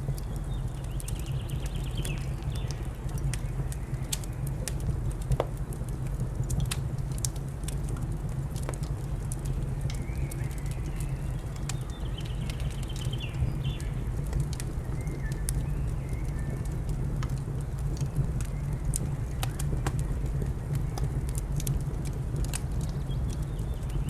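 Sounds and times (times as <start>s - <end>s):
wood fire crackling and popping: 0.0s - 24.0s
birds chirping faintly: 9.4s - 16.8s.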